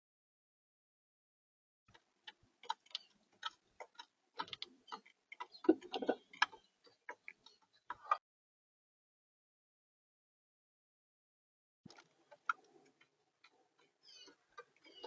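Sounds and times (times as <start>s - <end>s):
animal tapping at bird feeder: 2.6s - 7.4s.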